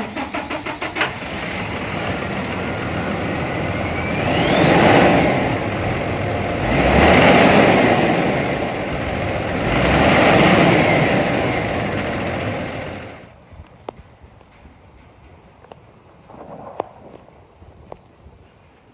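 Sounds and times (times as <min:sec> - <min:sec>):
diesel truck engine revving: 0:00.0 - 0:13.3.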